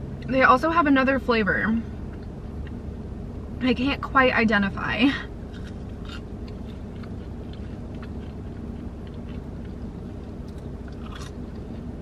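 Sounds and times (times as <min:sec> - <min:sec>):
low hum in car: 0:00.0 - 0:12.0
person chewing fries: 0:05.4 - 0:12.0.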